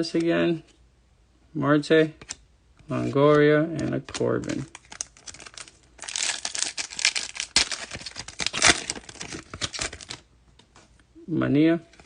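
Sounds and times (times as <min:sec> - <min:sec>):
foil wrapper tearing and crinkling: 0:04.2 - 0:10.2.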